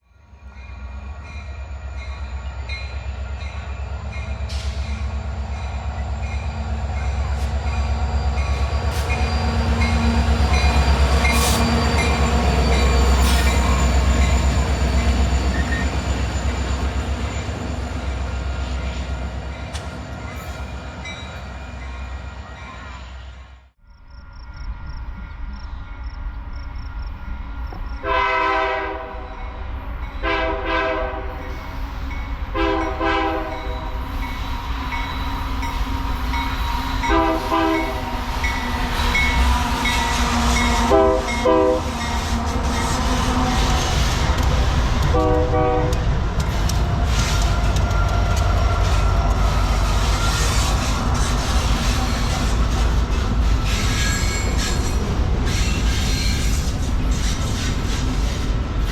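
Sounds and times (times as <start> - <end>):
locomotive rumble: 0.4 - 23.5, 24.7 - 58.9
locomotive horn blasts: 28.0 - 29.3, 30.2 - 31.4, 32.5 - 34.0, 37.0 - 38.0, 40.7 - 42.0, 45.0 - 46.1
train wheels clattering: 33.4 - 58.9.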